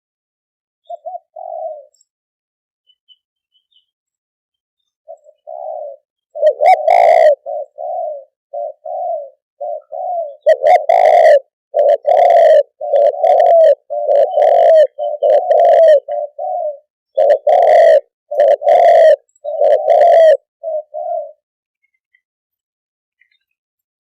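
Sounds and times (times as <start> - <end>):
dove cooing: 0.8 - 2.1, 5.1 - 21.4.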